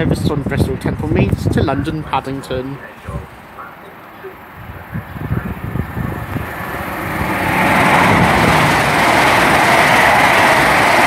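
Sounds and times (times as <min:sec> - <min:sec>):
train passing at speed: 0:04.4 - 0:11.0.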